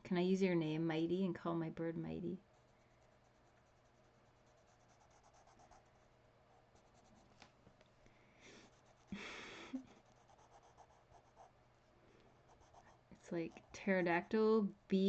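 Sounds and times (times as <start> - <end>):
pen scratching on paper: 2.5 - 5.9, 10.0 - 11.5, 12.5 - 14.4.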